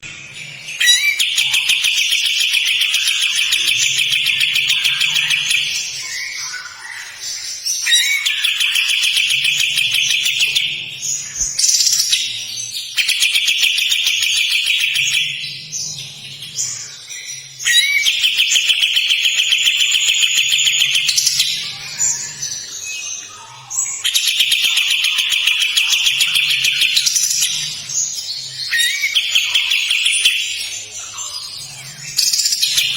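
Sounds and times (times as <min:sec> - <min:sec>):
bird singing rasping trills: 0:00.0 - 0:32.9.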